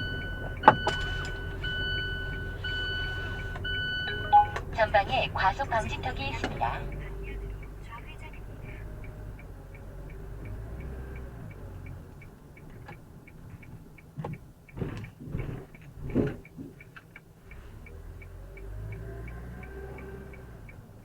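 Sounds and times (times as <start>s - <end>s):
truck engine rumble: 0.0s - 21.0s
light ticking: 0.1s - 21.0s
thumps and knocks over speed bump: 0.3s - 1.5s, 14.2s - 16.8s.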